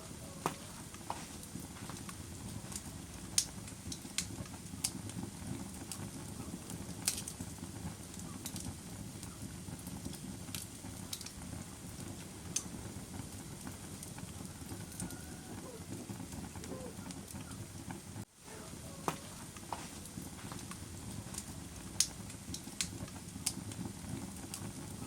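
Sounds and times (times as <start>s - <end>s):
wood fire crackling and popping: 0.0s - 25.0s.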